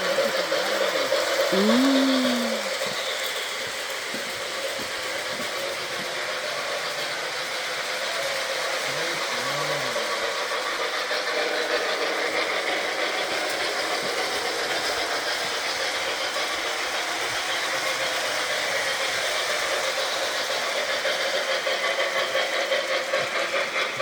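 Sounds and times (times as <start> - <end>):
model train running on track: 0.0 - 24.0.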